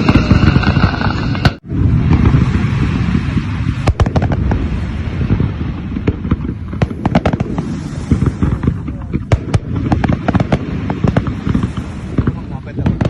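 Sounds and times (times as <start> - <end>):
fireworks booming and cracking: 0.0 - 13.0.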